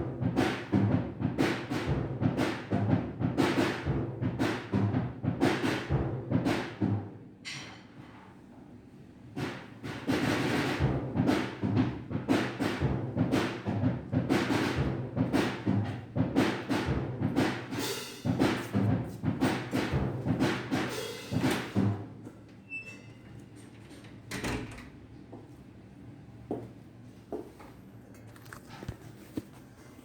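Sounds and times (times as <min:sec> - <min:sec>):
low drum strikes: 0:10.1 - 0:22.1.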